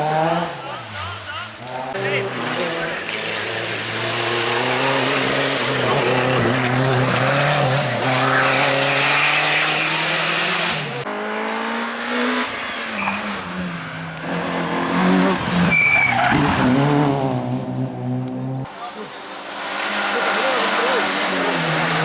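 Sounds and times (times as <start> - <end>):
rally car engine revving: 0.0 - 22.0
tyre squeal: 12.7 - 13.4, 15.6 - 16.7.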